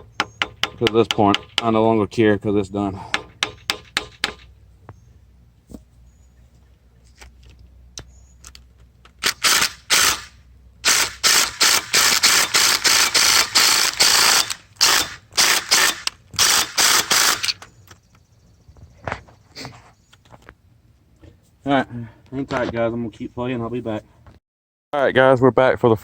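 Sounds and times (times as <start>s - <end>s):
impact wrench hammering: 0.0s - 1.8s, 3.0s - 4.5s, 9.2s - 17.5s.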